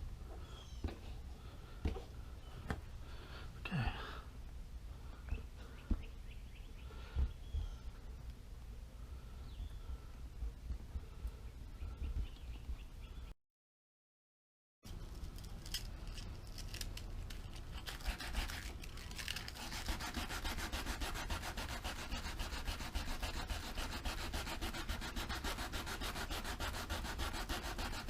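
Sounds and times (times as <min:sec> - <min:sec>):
sandpaper scuffing rubber: 0:17.8 - 0:28.0.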